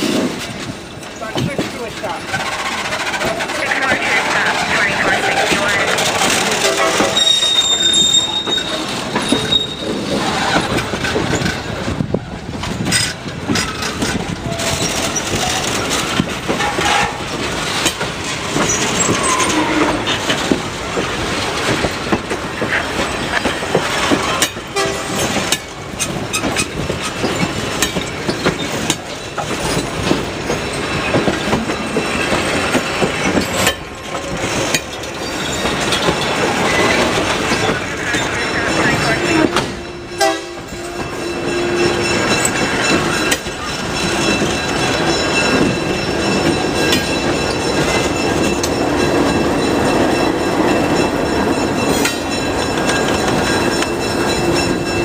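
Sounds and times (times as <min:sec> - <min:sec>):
train wheels clanking over rail joints: 0:00.0 - 0:55.0
high wheel squeal: 0:02.3 - 0:11.5, 0:18.6 - 0:20.2, 0:35.0 - 0:55.0.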